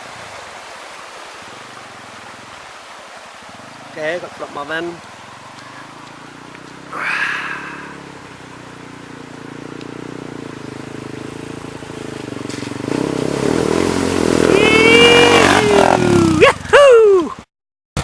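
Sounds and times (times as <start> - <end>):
motorcycle engine running: 5.2 - 16.8
high bending cry: 14.4 - 17.3.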